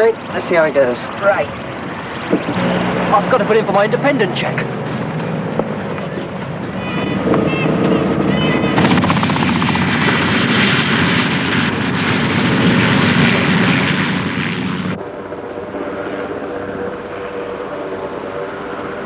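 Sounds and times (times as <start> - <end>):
helicopter rotors chopping: 4.9 - 15.0.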